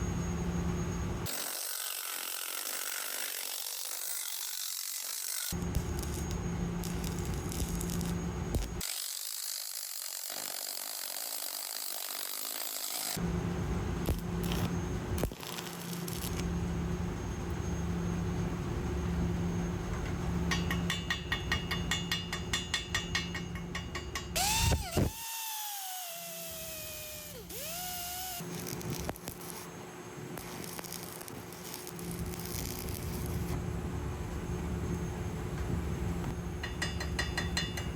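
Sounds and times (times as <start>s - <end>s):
power tool: 1.2s - 13.2s, 14.0s - 16.5s, 24.4s - 29.7s, 30.4s - 33.6s
welding arc: 1.2s - 13.2s, 14.0s - 16.6s, 24.4s - 33.6s.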